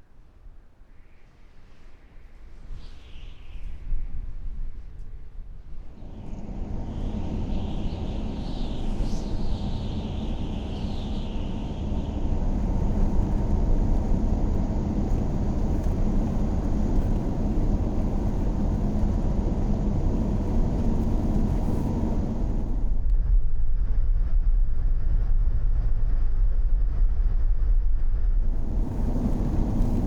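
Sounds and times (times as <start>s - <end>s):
car engine rumble: 5.9s - 23.0s, 28.4s - 30.0s
road noise hiss: 5.9s - 23.0s, 28.4s - 30.0s.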